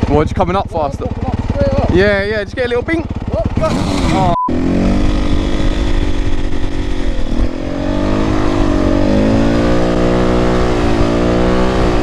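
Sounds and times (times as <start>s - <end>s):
dirt bike engine revving: 0.0s - 12.0s
wind rumble on microphone: 9.8s - 12.0s.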